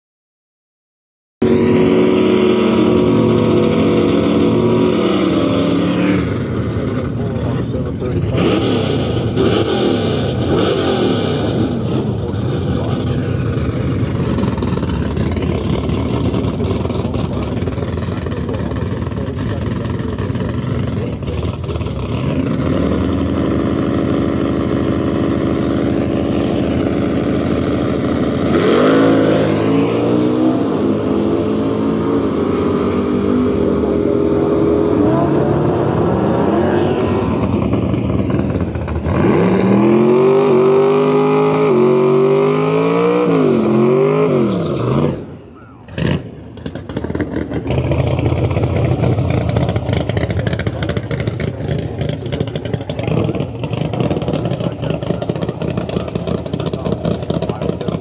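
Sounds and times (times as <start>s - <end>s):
engine sharp revs: 1.4s - 58.0s
engines lumpy idle: 12.2s - 28.4s, 45.6s - 58.0s.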